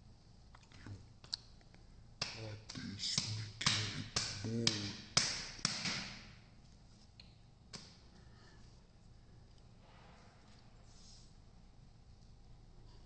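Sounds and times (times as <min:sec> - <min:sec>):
sharp taps and clicks: 0:02.2 - 0:06.2.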